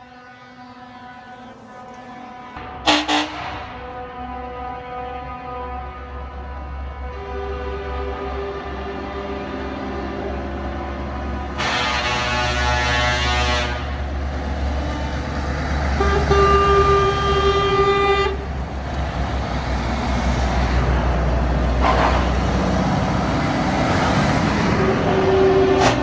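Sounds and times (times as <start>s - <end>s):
truck air horns blasting: 0.0s - 9.8s, 11.1s - 18.6s, 24.0s - 26.0s
diesel trucks rumbling past: 0.0s - 26.0s.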